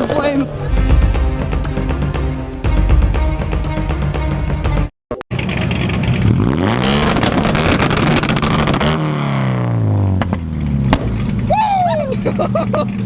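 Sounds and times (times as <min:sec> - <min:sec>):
car engine revving: 0:05.3 - 0:11.6.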